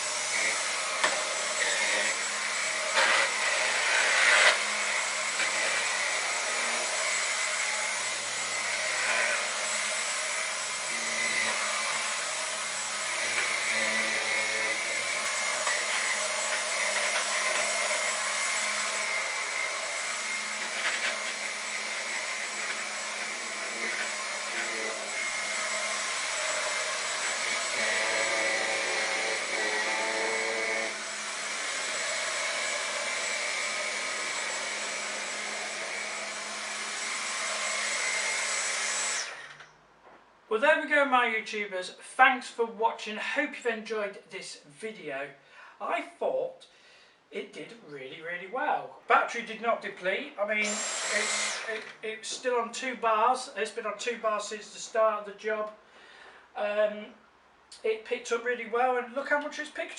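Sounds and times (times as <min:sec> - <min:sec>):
cordless vacuum cleaner running: 0:00.0 - 0:39.6, 0:50.6 - 0:52.0.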